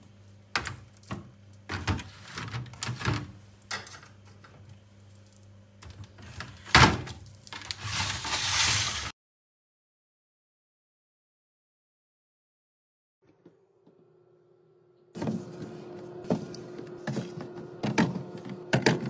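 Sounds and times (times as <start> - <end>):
low steady hum: 13.3 - 19.0
packaged items knocking and clacking: 15.2 - 19.0.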